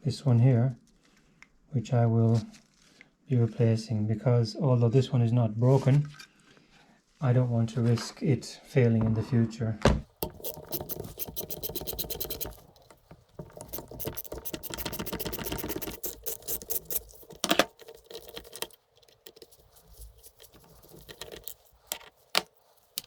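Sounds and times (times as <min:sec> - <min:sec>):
small hard parts clicking and rattling: 0:10.1 - 0:23.0.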